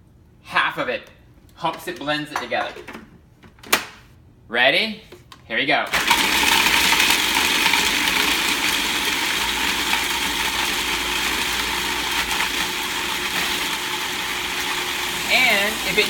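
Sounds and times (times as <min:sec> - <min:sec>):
food processor blades grinding: 0:05.9 - 0:16.0.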